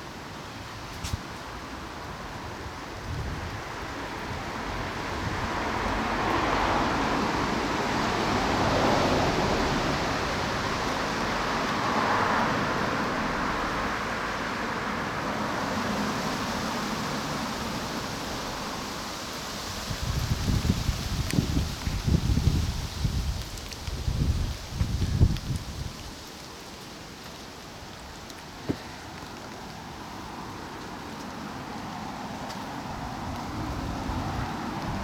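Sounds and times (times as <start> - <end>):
wind gusting through foliage: 0.0 - 35.0
wind rumble on microphone: 2.1 - 13.6, 19.6 - 26.3, 31.6 - 35.0.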